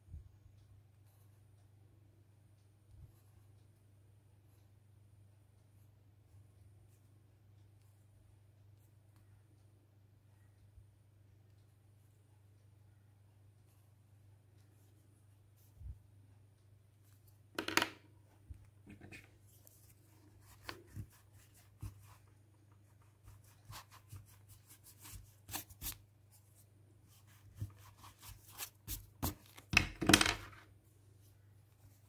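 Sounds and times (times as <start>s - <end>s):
paper and drawing tools rustling: 18.6s - 29.8s.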